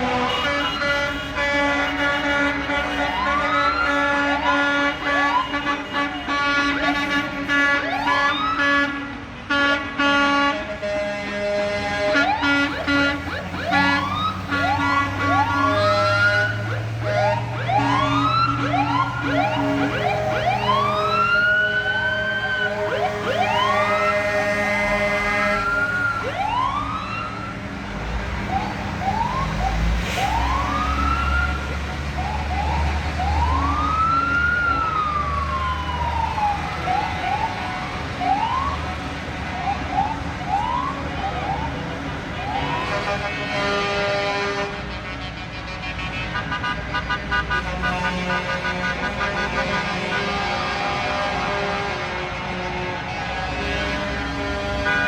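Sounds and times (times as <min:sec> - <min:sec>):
sirens wailing: 0:00.0 - 0:55.0
heavy vehicle engine rumble: 0:08.3 - 0:55.0
held horn tones: 0:08.8 - 0:26.8, 0:41.8 - 0:55.0.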